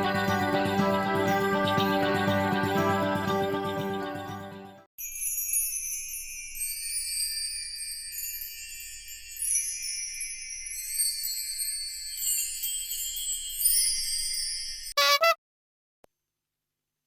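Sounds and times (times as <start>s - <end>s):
tinkling bell chimes: 5.0s - 15.0s.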